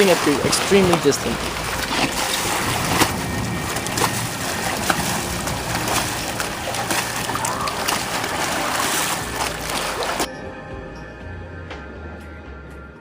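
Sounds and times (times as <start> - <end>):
rushing water noise: 0.0 - 10.3
water splashing: 0.0 - 10.3.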